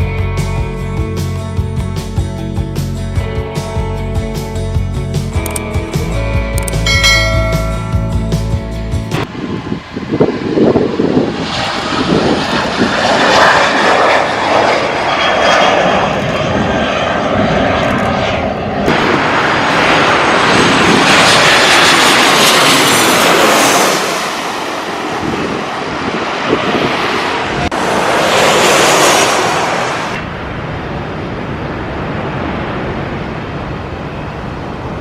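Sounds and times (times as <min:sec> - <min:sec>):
jet engine roar: 0:09.2 - 0:35.0.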